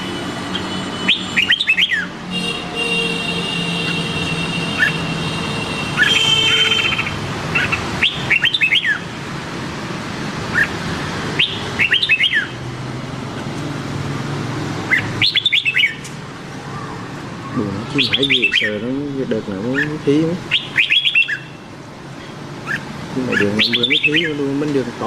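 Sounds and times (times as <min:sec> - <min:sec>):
bird singing whistled notes: 0:01.1 - 0:02.1, 0:07.6 - 0:09.0, 0:11.4 - 0:12.6, 0:14.9 - 0:16.0, 0:18.0 - 0:18.8, 0:20.5 - 0:21.6, 0:22.6 - 0:24.4.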